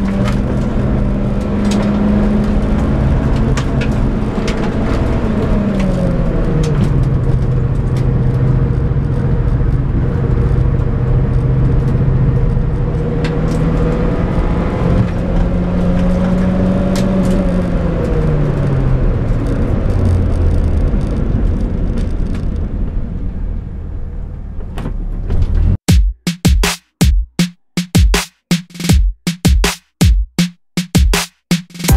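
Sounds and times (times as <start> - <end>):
car engine revving: 0.0 - 24.6
wind noise: 0.0 - 24.7
road noise: 0.0 - 25.8.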